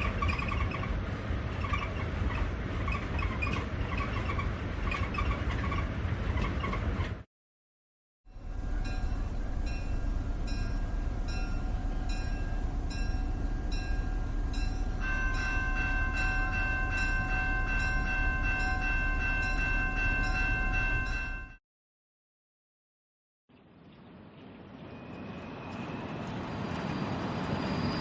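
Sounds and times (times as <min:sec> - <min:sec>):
steam train rumbling: 0:08.3 - 0:21.2.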